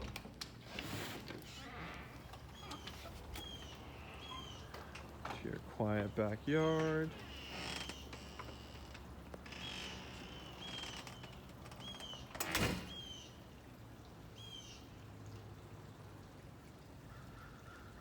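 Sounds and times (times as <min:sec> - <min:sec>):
bird chirping: 0:02.5 - 0:04.8.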